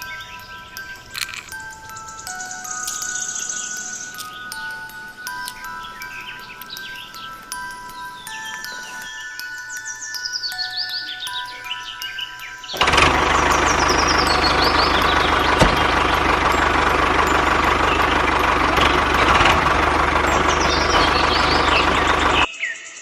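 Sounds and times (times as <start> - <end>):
motor humming: 12.8 - 22.5.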